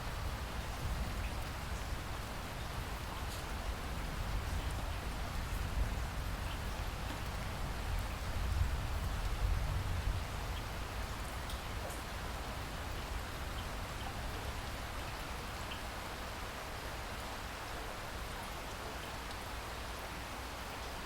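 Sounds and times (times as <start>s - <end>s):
rain falling: 0.0s - 21.0s
individual raindrop ticks: 10.5s - 12.1s, 18.7s - 19.5s.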